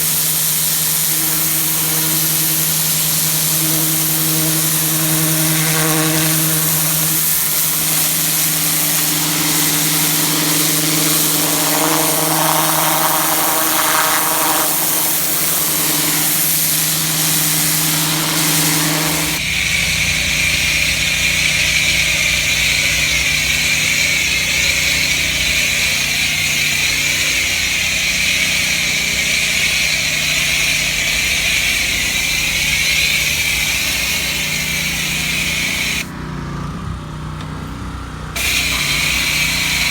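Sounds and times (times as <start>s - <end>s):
steady high whine: 0.0s - 21.7s
water spray hissing on concrete: 0.0s - 36.1s, 38.4s - 39.9s
pressure washer engine running: 0.0s - 39.9s.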